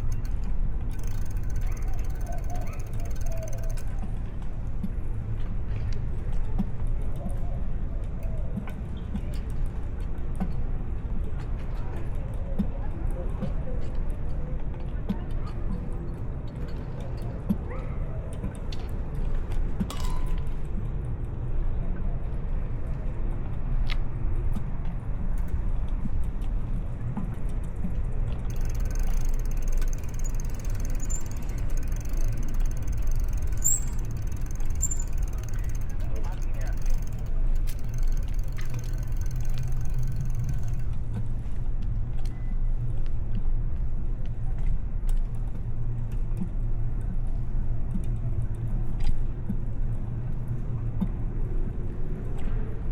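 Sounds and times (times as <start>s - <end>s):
tyres rolling on road: 0.0s - 6.8s, 27.2s - 41.6s
bicycle riding rumble: 0.0s - 52.9s
bike clicks and rattles: 0.0s - 52.9s.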